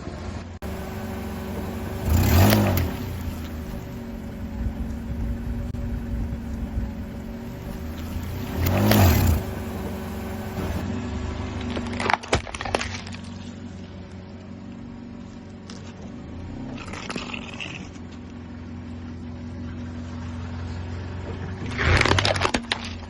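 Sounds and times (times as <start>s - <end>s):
crunching burst: 0.6s - 10.8s
machine motor running: 0.6s - 10.8s.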